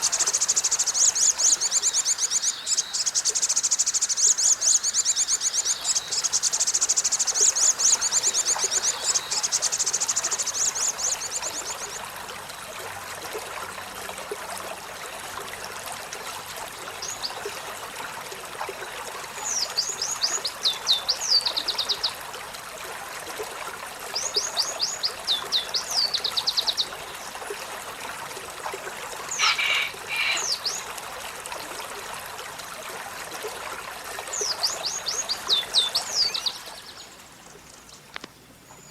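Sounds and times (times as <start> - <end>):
bird trilling: 29.4 - 30.8.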